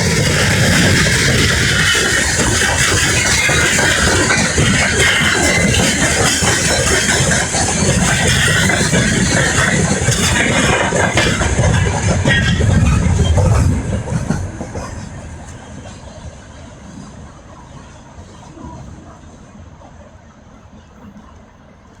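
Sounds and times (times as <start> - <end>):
freight train rolling on rails: 0.0 - 22.0.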